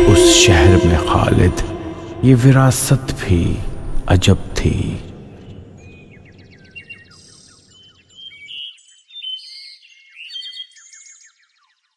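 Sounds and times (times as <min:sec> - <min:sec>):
songbirds chirping and trilling: 0:03.2 - 0:11.9.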